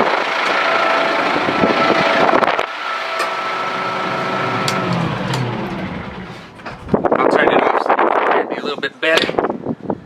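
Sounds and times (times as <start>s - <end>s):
tractor diesel engine running: 0.0s - 8.0s.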